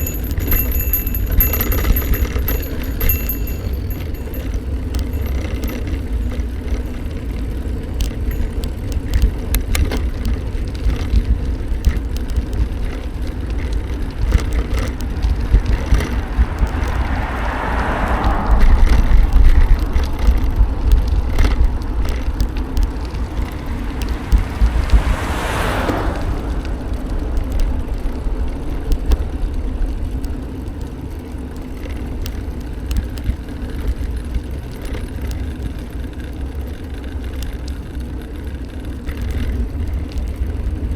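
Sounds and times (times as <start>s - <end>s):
rattling clicks: 0.0s - 6.9s
vehicle passing: 0.0s - 9.3s, 10.0s - 32.2s
wind rumbling on microphone: 0.0s - 33.6s.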